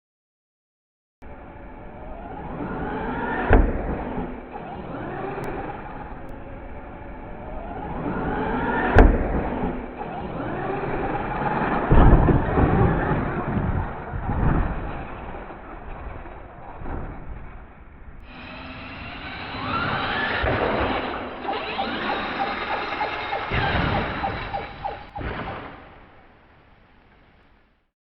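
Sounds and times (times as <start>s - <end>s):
cluster of knocks: 9.0s - 18.4s, 19.6s - 26.1s
electric motor whining: 18.2s - 25.2s
toy truck impacts: 18.2s - 25.4s.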